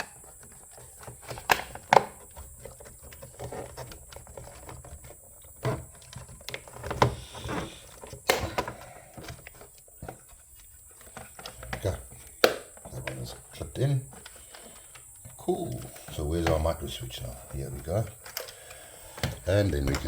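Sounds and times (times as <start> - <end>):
plastic cover clicking into place: 1.0 - 2.2, 6.4 - 10.2, 11.2 - 13.2.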